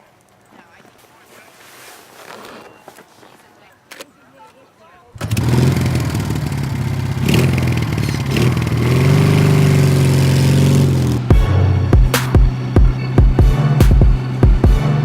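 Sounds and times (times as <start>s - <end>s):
motorcycle engine revving: 5.2s - 15.0s
music with a beat: 11.3s - 15.0s.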